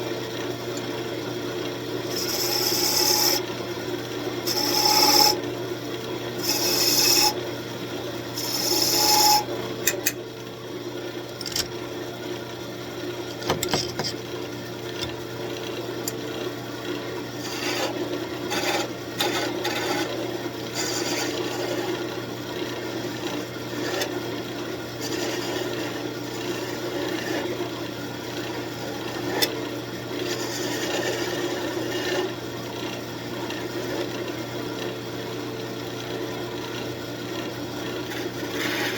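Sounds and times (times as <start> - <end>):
lathe motor hum: 1.6 - 5.5, 6.3 - 7.4, 8.2 - 10.0, 16.9 - 24.1
sandpaper rasps: 4.5 - 5.4, 6.4 - 7.3.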